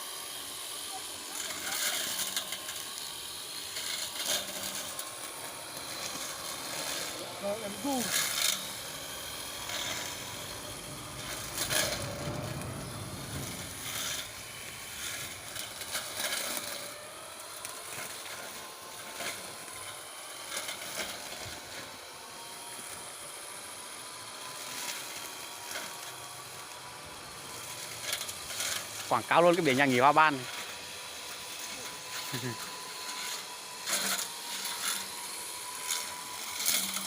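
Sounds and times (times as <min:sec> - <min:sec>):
brush cutter motor whine: 0:00.0 - 0:37.0.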